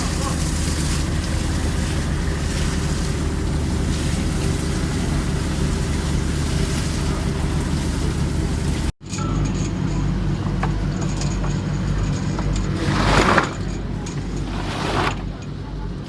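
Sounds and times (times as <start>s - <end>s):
wind and water hiss: 0.0s - 8.9s
boat engine droning: 0.0s - 16.0s.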